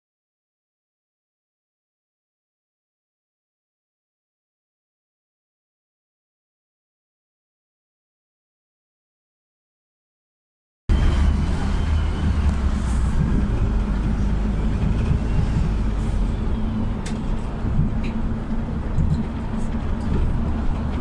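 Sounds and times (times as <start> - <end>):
bus engine rumbling: 10.9 - 21.0.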